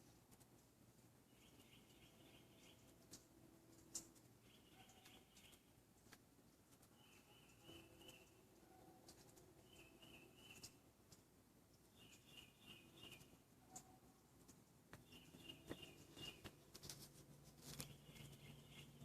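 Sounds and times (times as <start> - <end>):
faint bird twittering: 6.9 - 10.8, 15.0 - 19.0.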